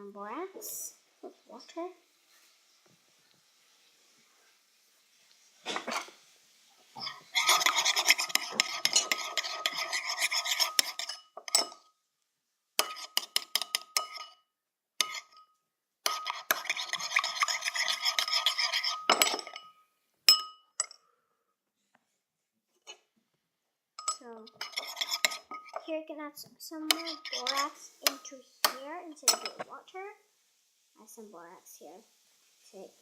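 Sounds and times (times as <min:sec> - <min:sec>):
spoon stirring and scraping container: 0:00.7 - 0:12.0, 0:12.8 - 0:14.4, 0:15.0 - 0:20.6, 0:22.7 - 0:23.1, 0:24.0 - 0:30.0.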